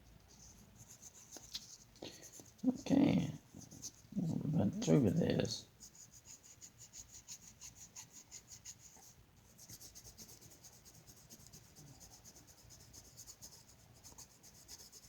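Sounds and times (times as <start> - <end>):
colouring tool scratching on paper: 0.3 - 5.2, 5.8 - 15.0.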